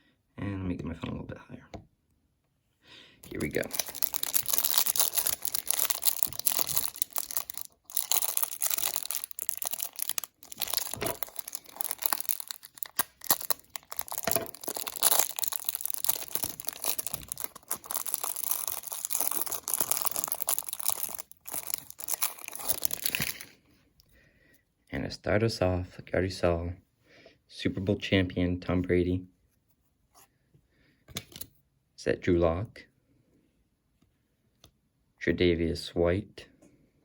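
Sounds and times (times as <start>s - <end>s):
packaging crinkling and tearing: 3.2s - 23.6s.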